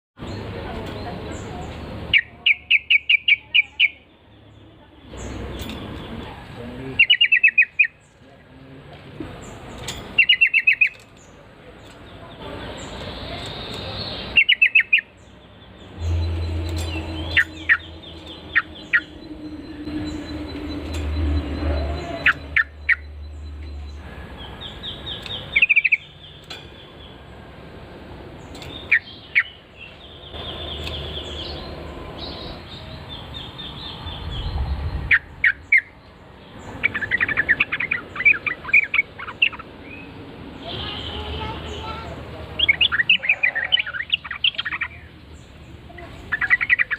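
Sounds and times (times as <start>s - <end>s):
bulbul chirping calls: 2.1s - 4.1s, 6.9s - 8.2s, 9.5s - 27.2s, 28.5s - 31.6s, 42.6s - 46.9s
low rumble: 15.7s - 24.0s.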